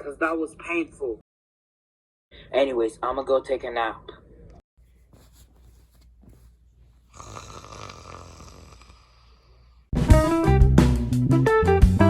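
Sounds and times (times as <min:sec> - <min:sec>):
person snoring: 0:07.1 - 0:09.9
upbeat guitar and drum music: 0:10.0 - 0:12.0.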